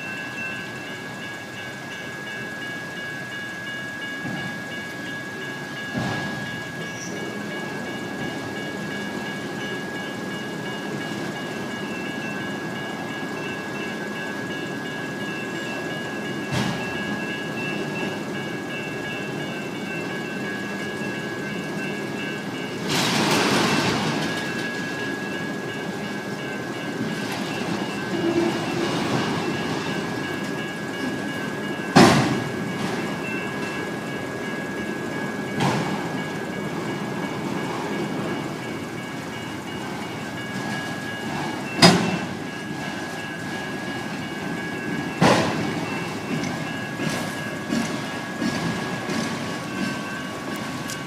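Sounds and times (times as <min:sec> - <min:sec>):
electronic crossing bells ringing: 0:00.0 - 0:51.0
freight cars rolling past: 0:00.0 - 0:51.0
sharp metallic clanks: 0:40.5 - 0:51.0.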